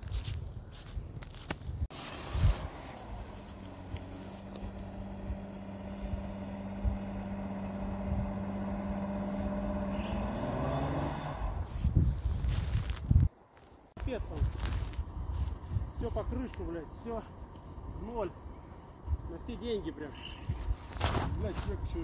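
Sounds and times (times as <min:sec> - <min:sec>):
vehicle engine running: 0:02.0 - 0:11.7.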